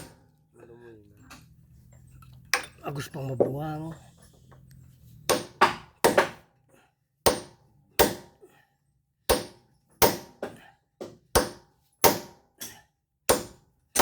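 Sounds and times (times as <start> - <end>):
tool knocking on wood: 5.3 - 6.4, 9.3 - 12.3.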